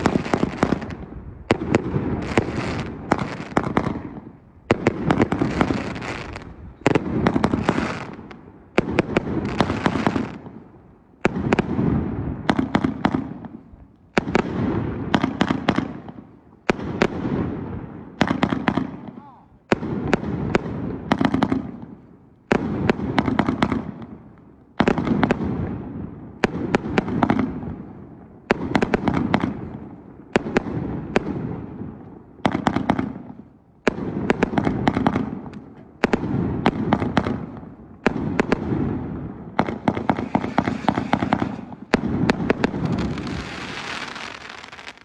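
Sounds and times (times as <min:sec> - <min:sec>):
fireworks bangs and crackle: 0:00.0 - 0:45.0.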